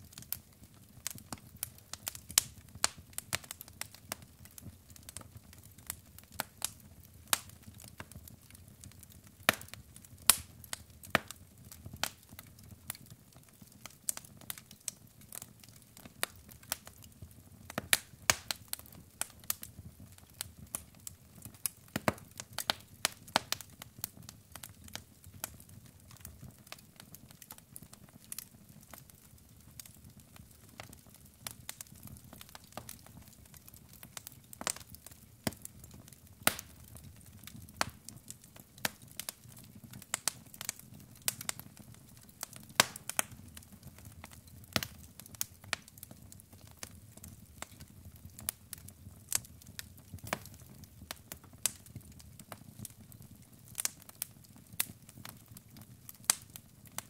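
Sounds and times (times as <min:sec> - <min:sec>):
wood fire crackling: 0:00.0 - 0:57.0
sharp pops and snaps: 0:36.4 - 0:36.8, 0:37.8 - 0:39.0, 0:42.8 - 0:43.4.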